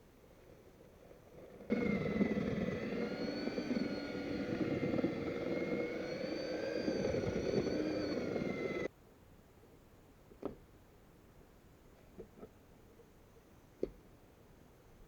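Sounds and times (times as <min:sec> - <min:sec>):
power tool motor whining: 0:01.4 - 0:08.9.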